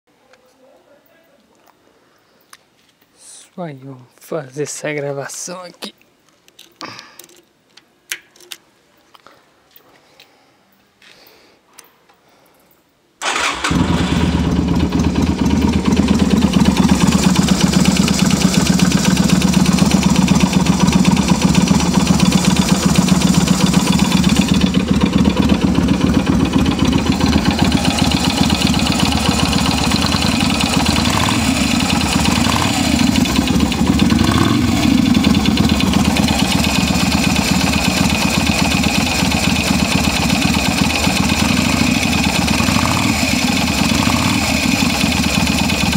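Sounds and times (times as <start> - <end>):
motorcycle engine starting and idling: 13.2 - 45.9
engine knocking noise: 13.3 - 45.9.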